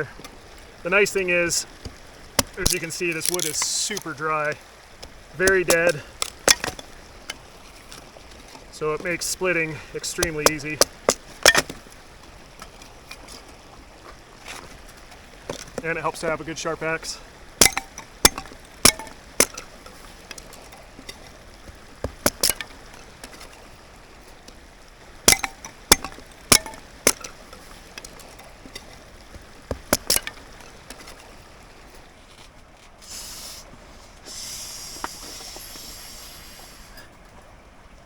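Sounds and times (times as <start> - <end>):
axe splitting firewood: 1.8 - 4.2, 4.9 - 8.1, 9.0 - 13.3, 17.4 - 23.8, 24.4 - 31.4
steady hiss of air: 33.0 - 37.1.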